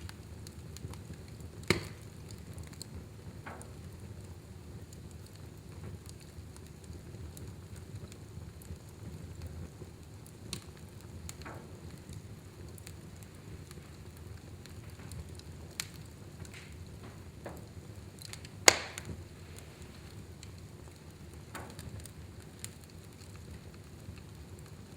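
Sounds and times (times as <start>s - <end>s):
fireplace fire burning: 0.0s - 24.9s
sharp loud pop of fire: 18.6s - 19.2s.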